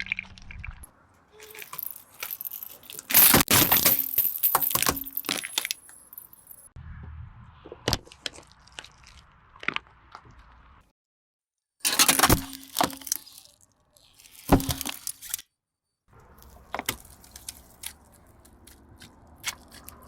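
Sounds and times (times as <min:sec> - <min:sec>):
low rumble: 0:06.8 - 0:08.2
tyre crushing brittle objects: 0:11.8 - 0:15.5, 0:16.1 - 0:20.0.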